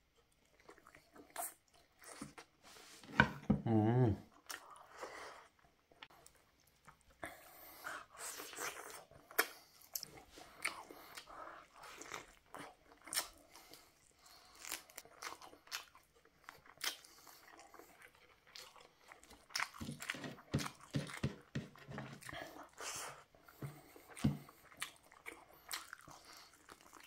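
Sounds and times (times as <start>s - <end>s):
person chewing with wet clicks: 0.1s - 2.5s, 4.3s - 7.2s, 8.4s - 21.2s, 23.8s - 27.0s.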